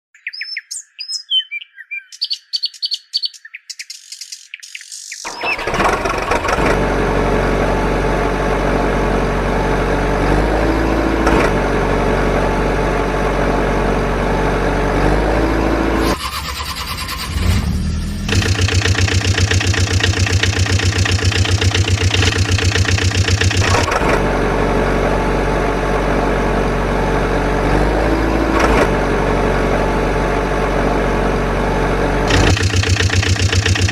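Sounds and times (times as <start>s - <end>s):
birds chirping: 0.2s - 5.7s
heavy engine running: 5.3s - 33.9s.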